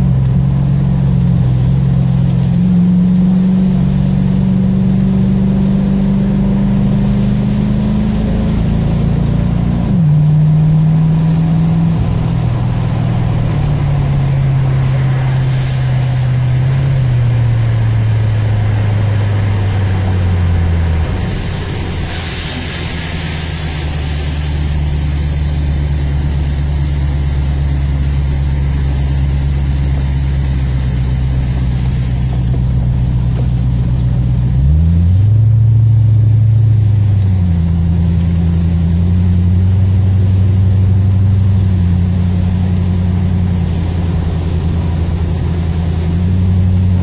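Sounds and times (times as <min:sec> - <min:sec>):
car engine running: 0:00.0 - 0:47.0
tyres hissing on wet track: 0:00.0 - 0:47.0.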